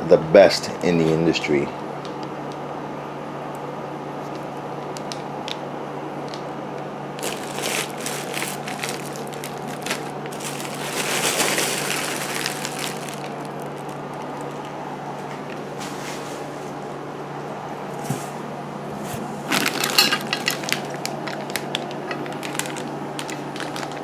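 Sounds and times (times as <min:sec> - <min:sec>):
steady low hum: 0:00.0 - 0:24.0
packing material crinkling: 0:07.2 - 0:14.8, 0:19.0 - 0:24.0.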